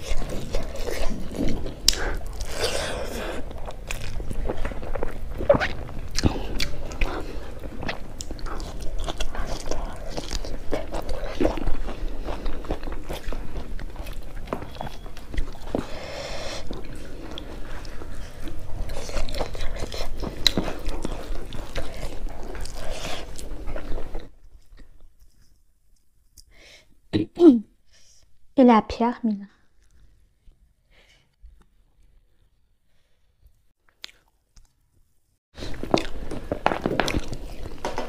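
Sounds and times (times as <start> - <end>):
crisp biting and chewing: 0.0 - 25.6, 35.6 - 38.0.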